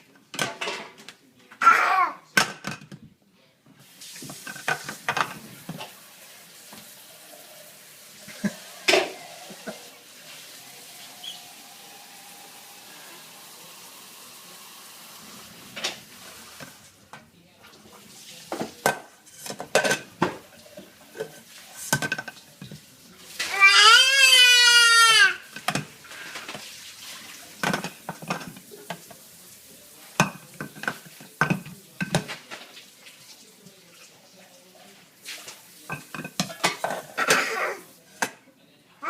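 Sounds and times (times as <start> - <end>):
dishes and cutlery clinking: 0.2 - 1.6, 2.3 - 3.1, 4.1 - 6.0, 8.3 - 9.9, 18.4 - 24.0, 25.4 - 29.3, 30.0 - 34.1, 35.2 - 38.4.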